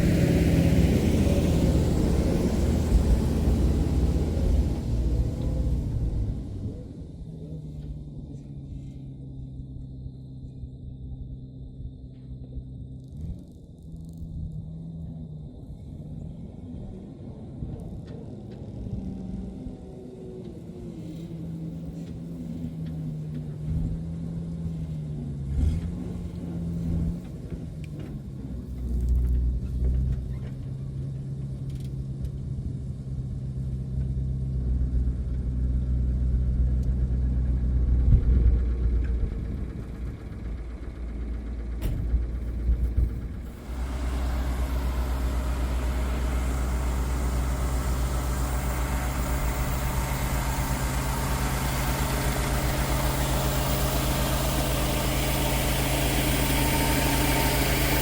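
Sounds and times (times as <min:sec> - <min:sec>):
loud machinery noise: 0:00.0 - 0:06.4, 0:41.8 - 0:58.0
farm machine engine running: 0:00.0 - 0:06.7, 0:37.0 - 0:58.0.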